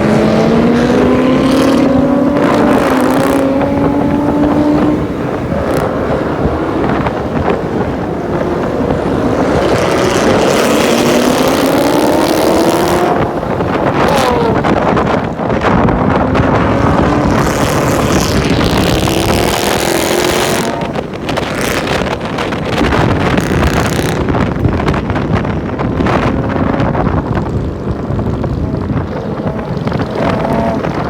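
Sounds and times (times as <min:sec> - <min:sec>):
car engine running: 0:00.0 - 0:31.0
wind buffeting microphone: 0:00.0 - 0:31.0.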